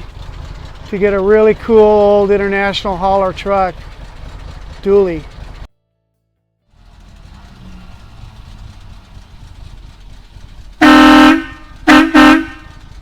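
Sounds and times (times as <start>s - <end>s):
low steady rumble: 0.0s - 5.8s, 6.6s - 13.0s
truck air horn blasting: 10.8s - 13.0s.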